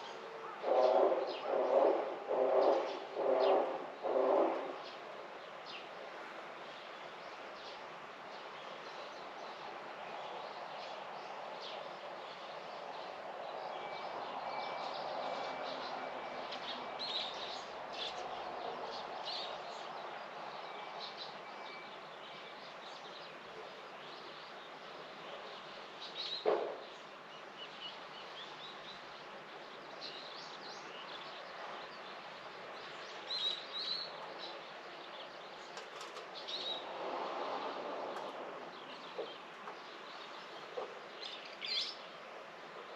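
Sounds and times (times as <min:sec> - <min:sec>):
outdoor background hiss: 0:00.0 - 0:42.9.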